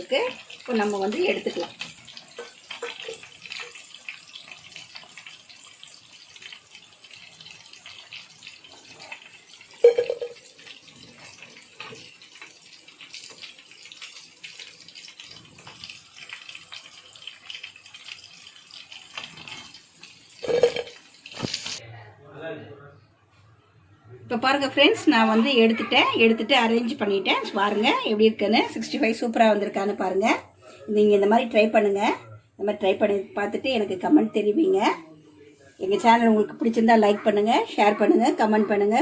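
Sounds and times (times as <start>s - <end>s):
chicken sizzling in hot oil: 0.0s - 21.8s.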